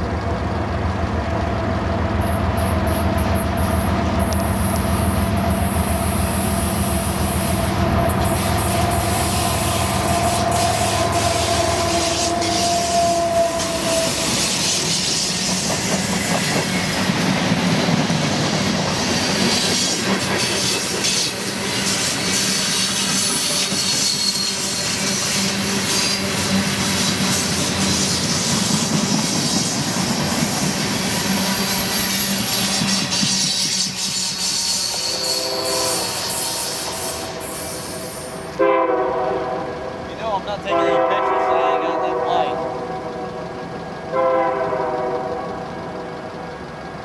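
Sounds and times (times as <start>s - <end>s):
steady locomotive tone: 0.0s - 47.0s
train wheels rumbling on rails: 0.0s - 47.0s
high wheel squeals: 2.2s - 17.0s, 19.0s - 29.9s, 30.6s - 38.6s.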